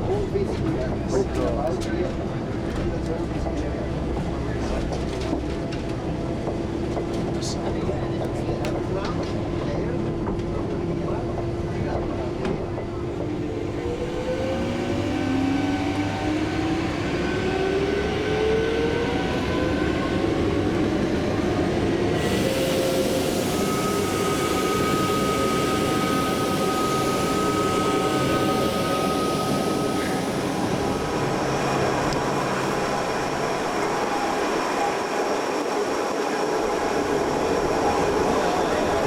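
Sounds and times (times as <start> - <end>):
train rolling noise: 0.0 - 39.0
electric train motor whine: 13.2 - 36.0.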